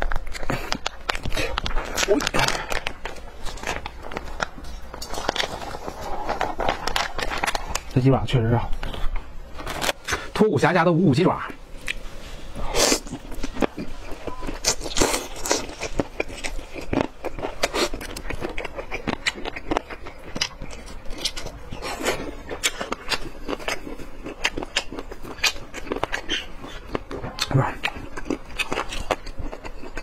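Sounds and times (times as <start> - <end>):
mouth chewing clicks and smacks: 13.3 - 30.0.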